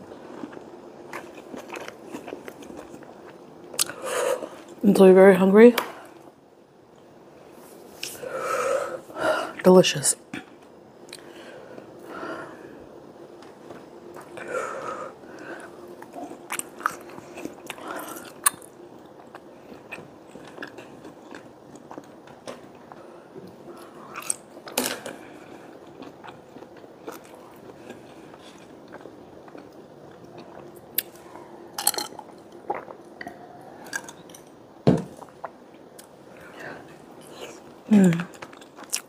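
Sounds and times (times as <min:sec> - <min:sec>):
person chewing food: 0:00.0 - 0:04.8, 0:15.2 - 0:39.0.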